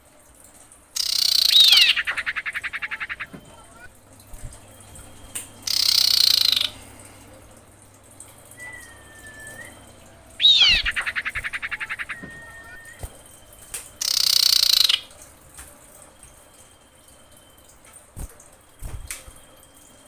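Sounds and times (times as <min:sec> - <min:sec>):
bird calling with whistles and trill: 0:01.0 - 0:03.9, 0:04.8 - 0:07.1, 0:08.5 - 0:15.2.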